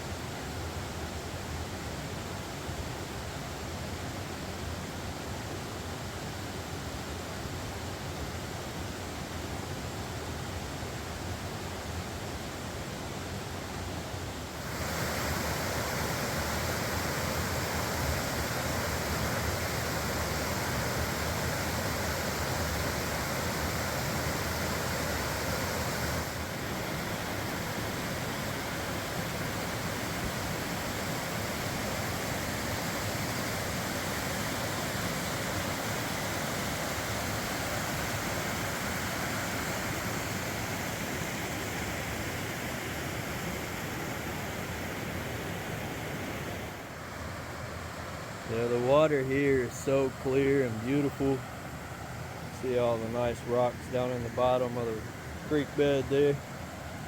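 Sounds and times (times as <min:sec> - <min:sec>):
waterfall rushing: 0:14.6 - 0:57.0.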